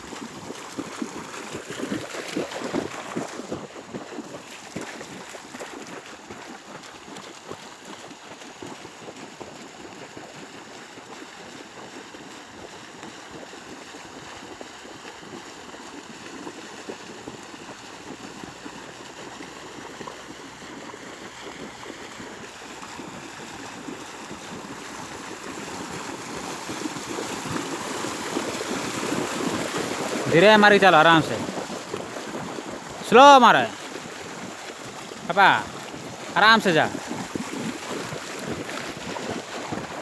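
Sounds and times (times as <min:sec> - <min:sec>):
water splashing from runners: 0:00.0 - 0:40.0.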